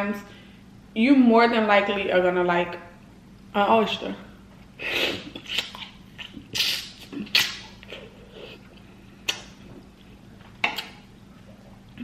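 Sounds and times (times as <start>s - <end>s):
wet chewing and lip smacks: 5.4s - 11.8s.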